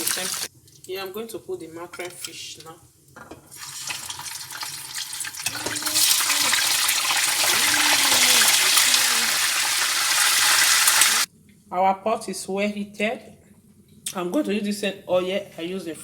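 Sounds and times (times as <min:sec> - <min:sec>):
fish sizzling in hot oil: 0:00.0 - 0:00.5, 0:03.5 - 0:11.3.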